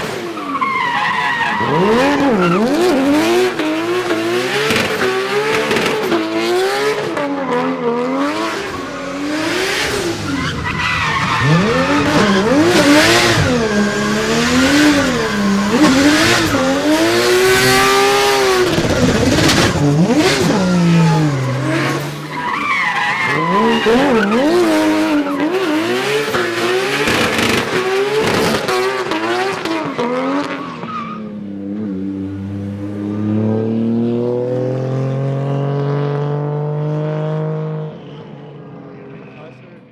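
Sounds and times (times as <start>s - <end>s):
tyres squealing: 0.0s - 6.9s, 8.5s - 29.9s
car engine revving: 0.0s - 37.8s.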